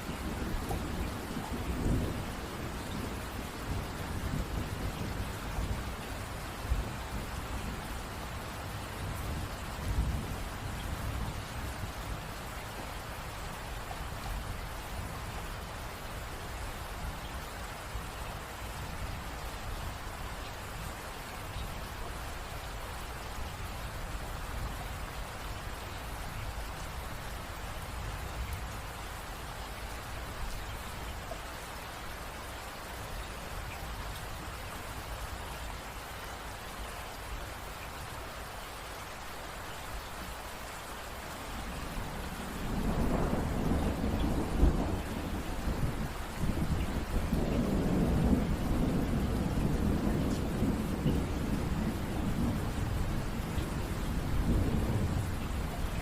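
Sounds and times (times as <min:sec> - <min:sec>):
thunder rumbling: 0:00.0 - 0:06.0, 0:41.7 - 0:56.0
rain falling: 0:00.0 - 0:56.0.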